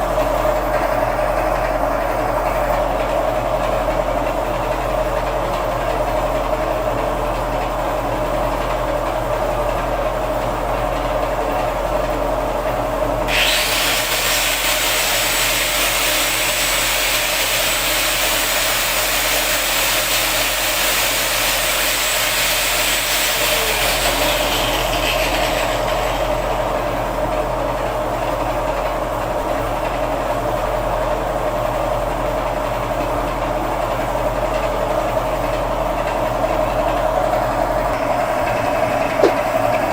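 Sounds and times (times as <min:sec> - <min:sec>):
small machine humming: 0:00.0 - 0:28.7, 0:34.8 - 0:39.9
loud hissing rasping noise: 0:13.3 - 0:27.0.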